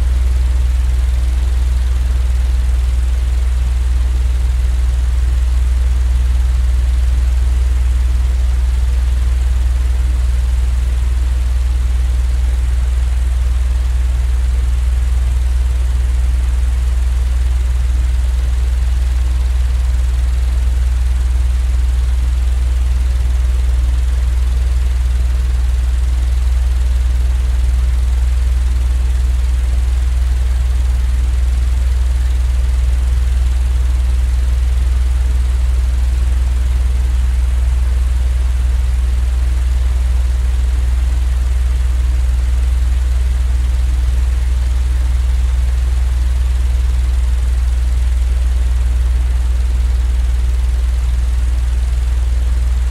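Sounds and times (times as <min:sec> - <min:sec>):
faint hum: 0:00.0 - 0:04.6
low droning rumble: 0:00.0 - 0:52.9.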